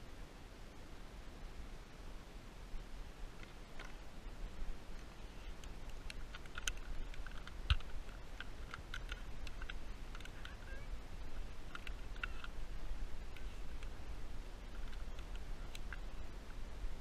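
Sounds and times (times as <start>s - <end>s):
low steady rumble: 0.0s - 17.0s
light clicks and ticks: 3.4s - 4.0s, 4.9s - 14.0s, 14.6s - 16.6s.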